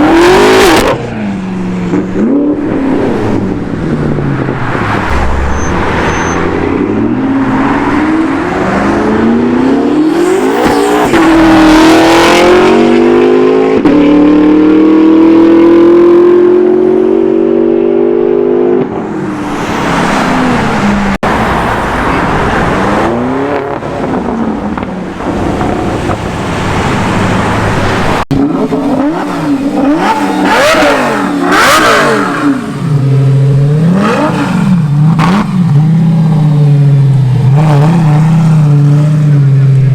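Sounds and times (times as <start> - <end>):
car engines accelerating hard: 0.0 - 39.9
engine revving: 1.9 - 18.8, 28.0 - 39.9.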